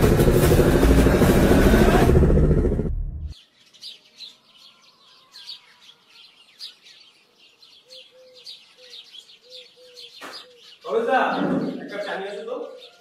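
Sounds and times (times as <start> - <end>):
motorcycle engine running: 0.0 - 3.4
small birds chirping: 3.3 - 13.0.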